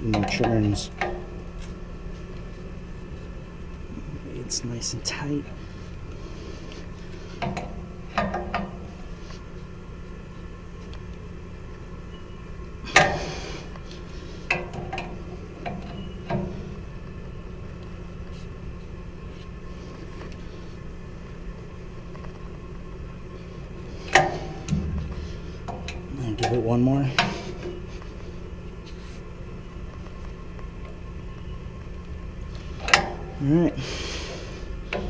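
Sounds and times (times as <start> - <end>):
equipment humming: 0.0 - 35.0.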